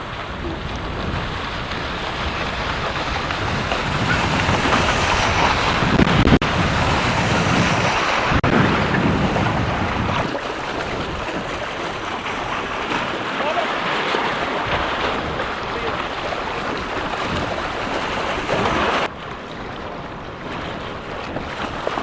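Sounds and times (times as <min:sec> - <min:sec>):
water sloshing around boat: 0:00.0 - 0:22.0
wind buffeting microphone: 0:00.0 - 0:22.0.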